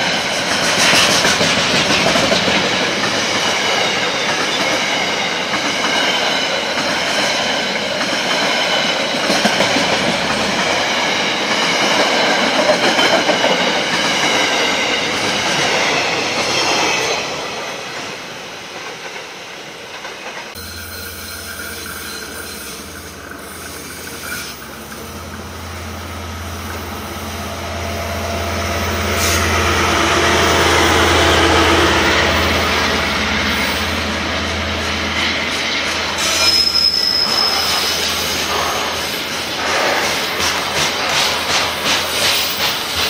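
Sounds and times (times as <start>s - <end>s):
diesel locomotive engine drone: 0.0s - 43.0s
high wheel squeal: 20.6s - 34.1s, 34.7s - 40.4s.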